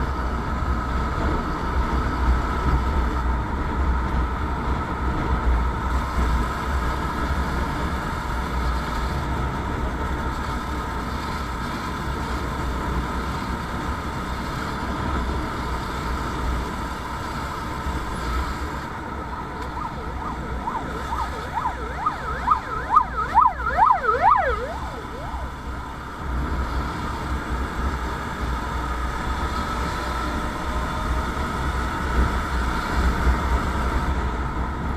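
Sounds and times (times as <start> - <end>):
traffic rumble: 0.0 - 34.9
wind: 0.0 - 34.9
constant hum: 14.4 - 32.6
emergency siren wailing: 18.8 - 26.6.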